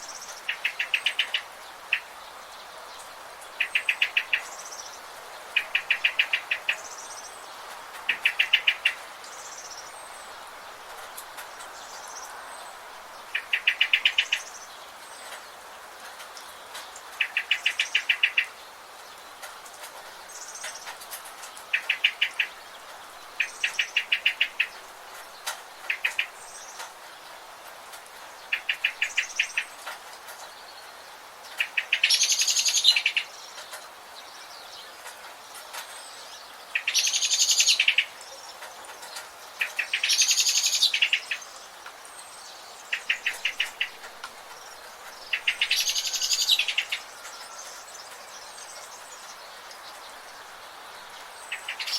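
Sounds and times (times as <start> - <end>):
steady background hiss: 0.0 - 51.9
harsh bird calls: 28.4 - 51.9
birds trilling: 42.3 - 51.9.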